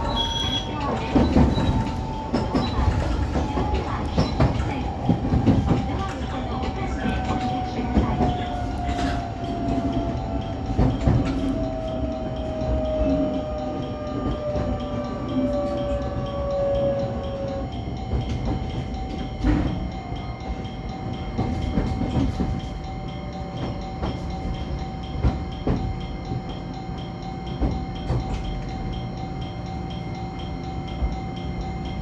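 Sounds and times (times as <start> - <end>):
wheels clicking over rail joints: 0.0 - 17.4
electric train rumble and whine: 0.0 - 32.0.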